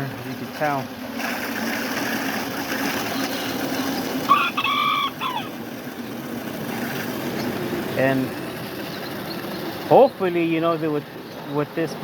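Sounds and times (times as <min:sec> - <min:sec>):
steady low hum: 0:00.0 - 0:12.0
rooster crowing: 0:04.3 - 0:05.6.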